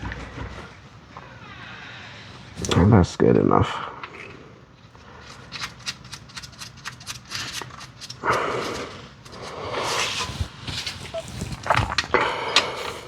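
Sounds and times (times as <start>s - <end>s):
scraping rustling movements: 4.8s - 13.0s
hand tool clicking: 5.2s - 9.5s.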